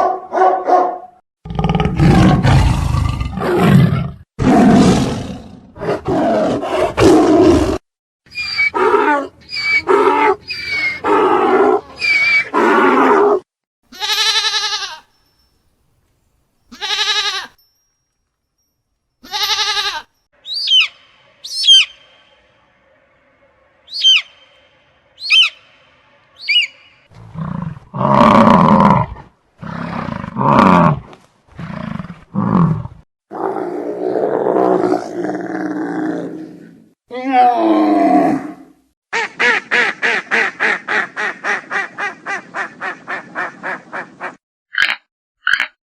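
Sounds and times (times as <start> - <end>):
sharp falling chirps: 23.9 - 25.8.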